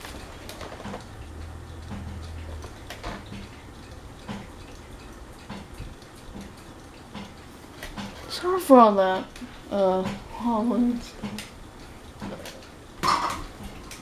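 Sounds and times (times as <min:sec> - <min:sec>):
low hum: 0:00.0 - 0:06.0
wobbling ceiling fan: 0:00.0 - 0:14.0
clicks and knocks: 0:11.2 - 0:14.0.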